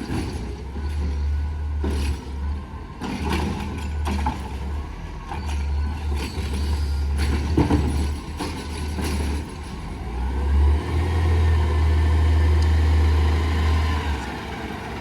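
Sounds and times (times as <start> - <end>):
metal clanks and rattles: 5.3 - 9.9.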